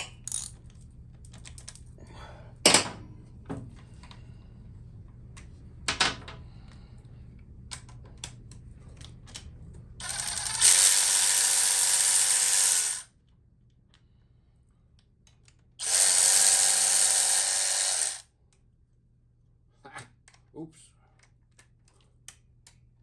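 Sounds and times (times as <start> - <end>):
metallic clinks of tools: 0.0 - 0.5
power tool whirring: 10.0 - 13.1, 15.8 - 18.2.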